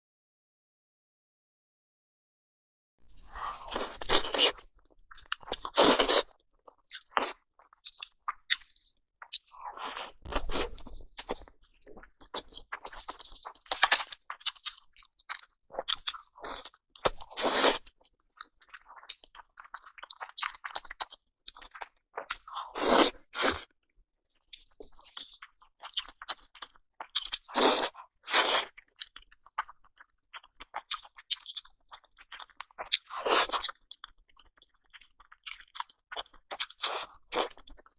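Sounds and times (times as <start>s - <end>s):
soft chewing crackles: 3.1s - 23.7s, 24.3s - 37.9s
loud crunching bites: 3.3s - 4.6s, 5.4s - 6.3s, 9.4s - 11.5s.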